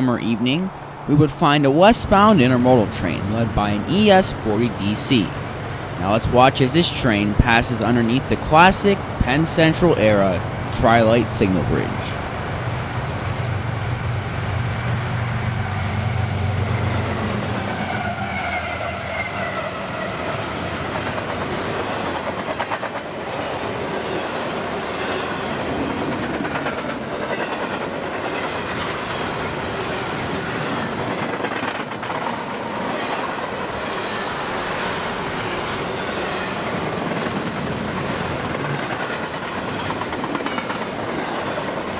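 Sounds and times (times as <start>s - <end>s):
diesel locomotive engine hum: 0.0s - 41.9s
train cars rumbling past: 0.0s - 41.9s
wheels clacking over rail joints: 20.1s - 41.9s.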